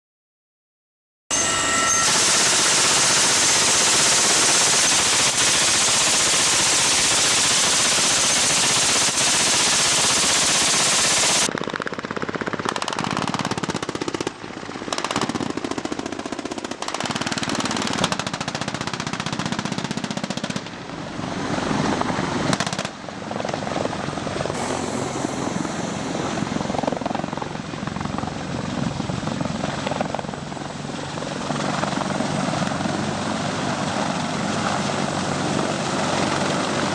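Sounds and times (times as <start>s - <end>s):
helicopter rotors pulsing: 1.4s - 36.9s
turbine hiss: 24.5s - 26.7s.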